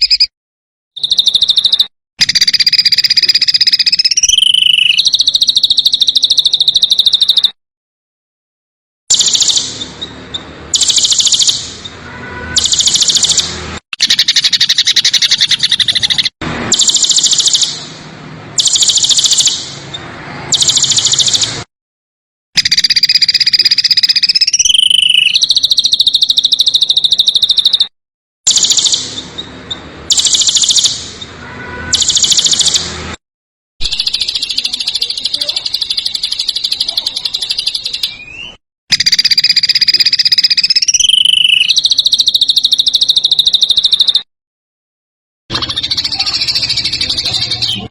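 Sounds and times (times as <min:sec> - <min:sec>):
songbird trilling: 0:01.0 - 0:07.6, 0:09.1 - 0:11.7, 0:14.0 - 0:17.8, 0:22.6 - 0:27.9, 0:33.8 - 0:44.2.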